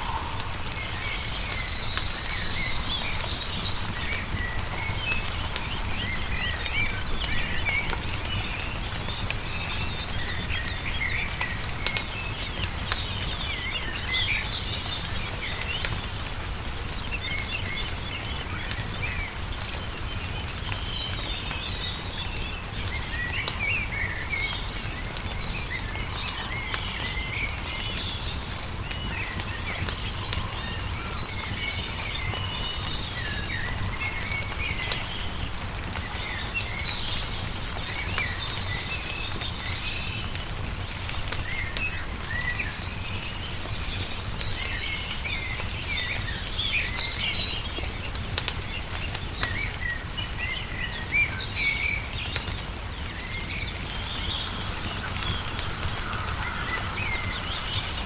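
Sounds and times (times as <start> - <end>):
low rumble: 0.0 - 3.2
songbirds chirping: 0.0 - 58.0
wood fire crackling: 0.0 - 58.0.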